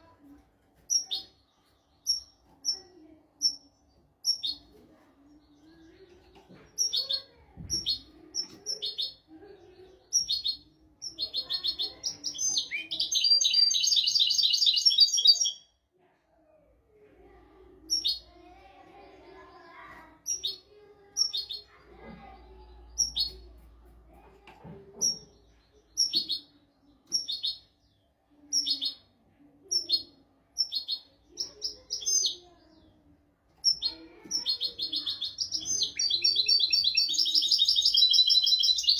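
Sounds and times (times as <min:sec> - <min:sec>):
goldfinch singing: 0:34.4 - 0:38.9.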